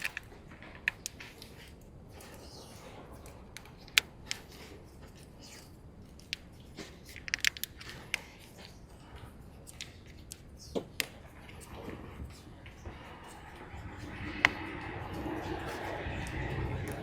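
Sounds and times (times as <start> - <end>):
snips and clicks on wiring: 0.0 - 8.8.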